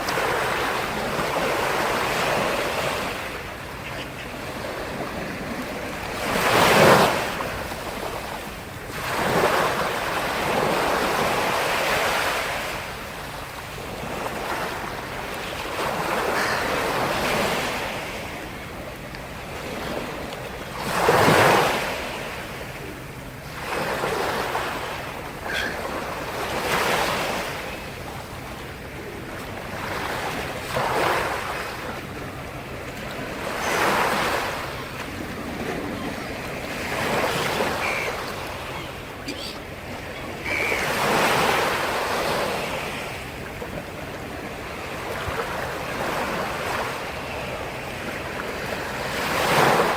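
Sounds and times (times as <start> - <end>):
waves breaking on shore: 0.0 - 49.9.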